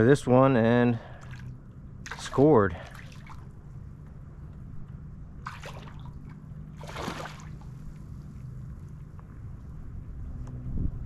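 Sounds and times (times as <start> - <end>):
steady low hum: 0.0 - 11.0
fish splashing at surface: 5.4 - 6.2, 6.8 - 7.6.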